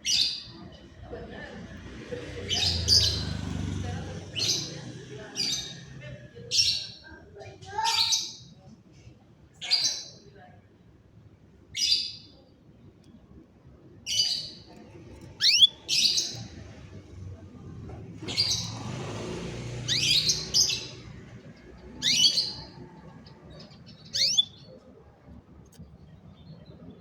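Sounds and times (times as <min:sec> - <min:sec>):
canary chirping: 0:00.0 - 0:01.1, 0:01.8 - 0:07.0, 0:14.1 - 0:24.8.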